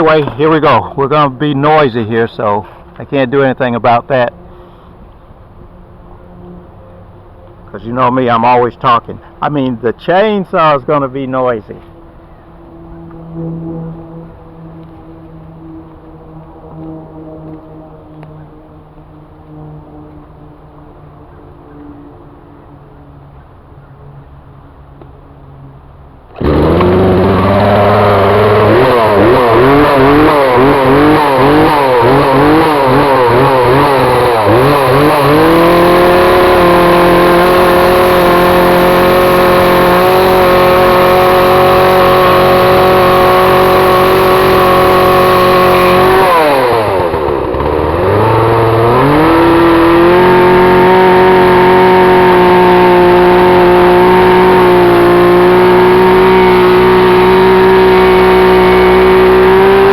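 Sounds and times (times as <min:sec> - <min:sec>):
chainsaw cutting wood: 0:26.3 - 0:59.9.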